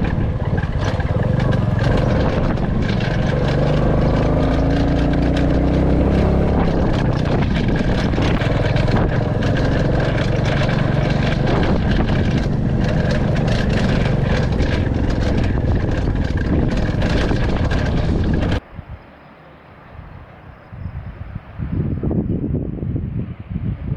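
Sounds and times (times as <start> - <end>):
motorcycle engine running: 0.0 - 18.6
sharp rattling clicks: 0.0 - 18.6
wind noise: 0.0 - 19.1, 19.8 - 23.9.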